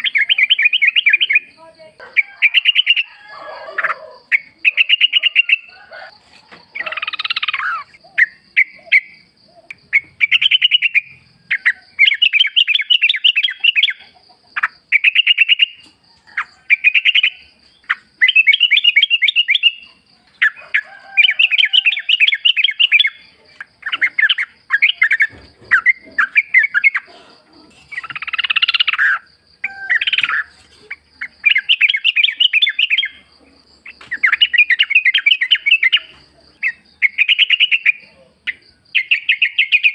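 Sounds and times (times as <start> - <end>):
bird song bubbly chattering: 0.0 - 1.6, 4.2 - 5.7, 6.8 - 15.8, 16.4 - 20.6, 21.9 - 27.1, 27.9 - 29.3, 30.0 - 39.9.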